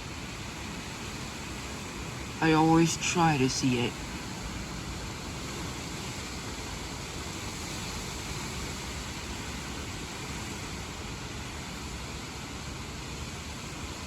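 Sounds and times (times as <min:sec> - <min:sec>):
rain hissing: 0:02.2 - 0:04.4.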